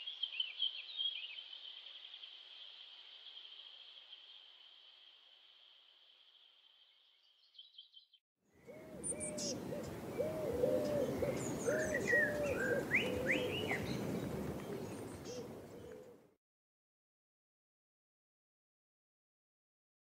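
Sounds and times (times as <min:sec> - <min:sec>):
low hooting bird calls: 0:08.6 - 0:16.3.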